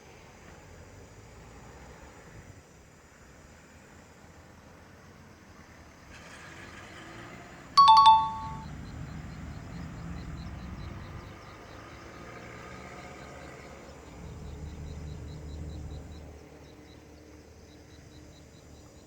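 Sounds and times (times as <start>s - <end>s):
two-note electronic chime: 7.8s - 8.7s.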